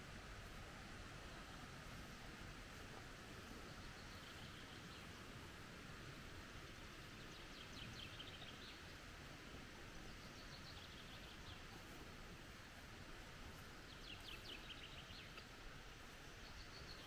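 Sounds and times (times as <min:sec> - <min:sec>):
steady forest hiss: 0:00.0 - 0:17.0
songbird chirping: 0:03.4 - 0:05.6, 0:06.8 - 0:09.1, 0:09.9 - 0:12.1, 0:13.4 - 0:17.0.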